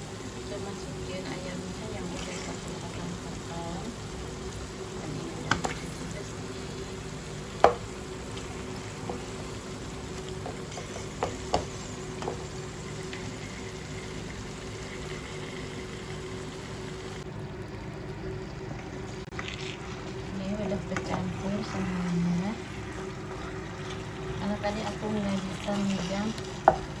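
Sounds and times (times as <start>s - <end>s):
food frying: 0.0s - 27.0s
spatula scraping a pan: 10.5s - 12.5s, 25.0s - 26.9s.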